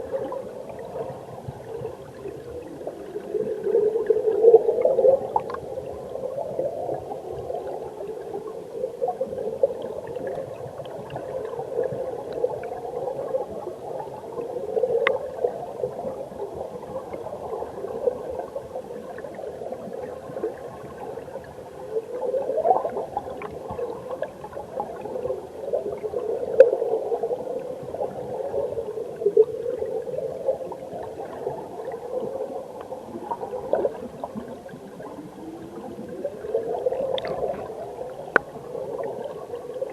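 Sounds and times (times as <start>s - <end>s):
underwater gurgling and bubbling: 0.0s - 39.9s
faint clicks: 5.4s - 5.7s, 15.0s - 15.2s, 38.3s - 38.6s.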